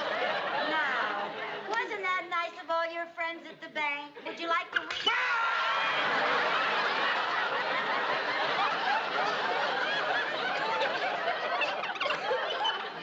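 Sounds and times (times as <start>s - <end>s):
audience laughing: 0.0s - 1.8s, 5.5s - 13.0s.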